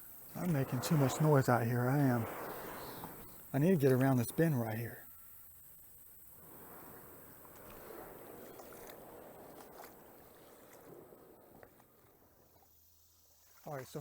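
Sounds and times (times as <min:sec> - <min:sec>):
water swishing and splashing: 0:06.4 - 0:11.6.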